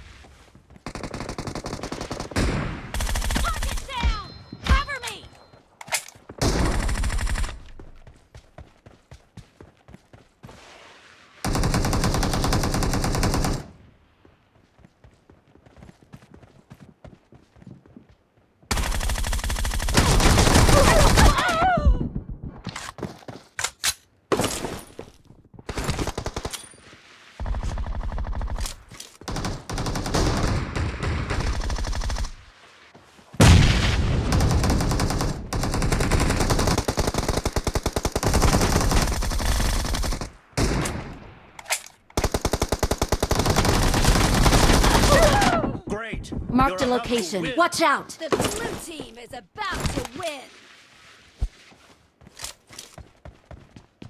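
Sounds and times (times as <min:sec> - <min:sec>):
video game automatic gunfire: 0:18.7 - 0:21.2, 0:29.3 - 0:32.3, 0:34.3 - 0:40.7, 0:42.2 - 0:45.4.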